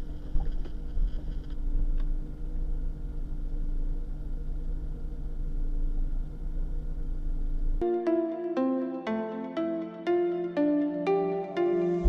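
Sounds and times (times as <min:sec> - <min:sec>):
vehicle engine and road noise: 0:00.0 - 0:07.8.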